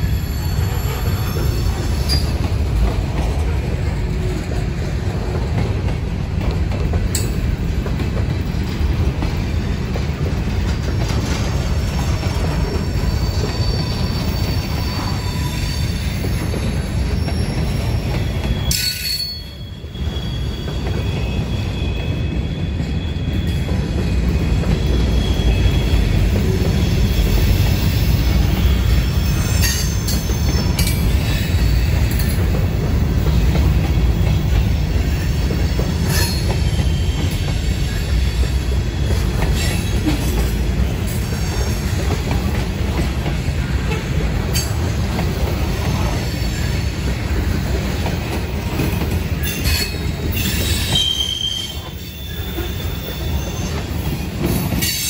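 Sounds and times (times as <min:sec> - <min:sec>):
train wheels rumbling on rails: 0:00.0 - 0:55.0
high-pitched wheel squeal: 0:12.6 - 0:23.6, 0:49.4 - 0:53.9.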